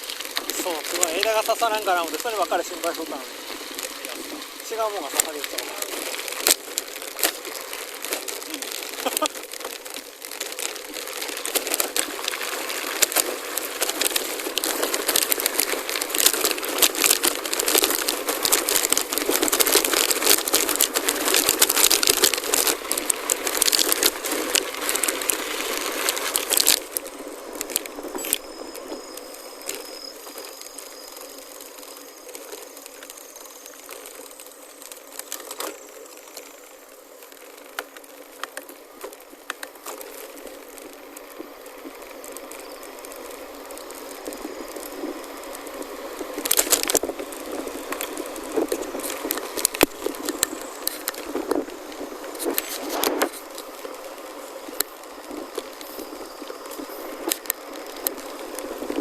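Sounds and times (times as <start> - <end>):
bike tyres rolling over gravel: 0.0 - 59.0.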